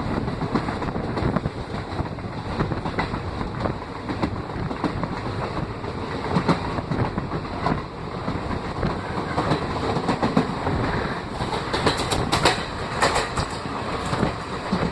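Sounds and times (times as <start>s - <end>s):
train rumbling: 0.0s - 14.9s
wheels clacking over rail joints: 0.0s - 14.9s.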